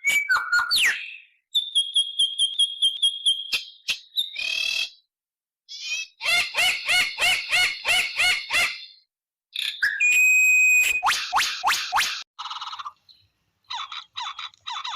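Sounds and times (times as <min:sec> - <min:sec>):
repeated bird call notes: 0:00.0 - 0:05.1, 0:05.7 - 0:14.9
high whistle-like tone: 0:09.8 - 0:12.2.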